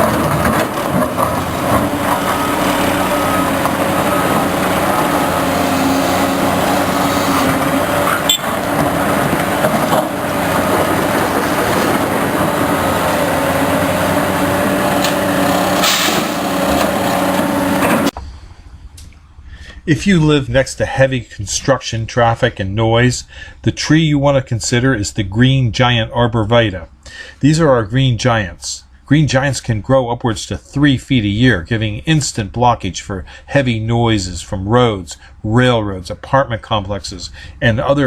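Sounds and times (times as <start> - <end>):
metal knocks and clanks: 0.0 - 13.4, 14.9 - 18.1
loader diesel engine running: 0.0 - 18.2.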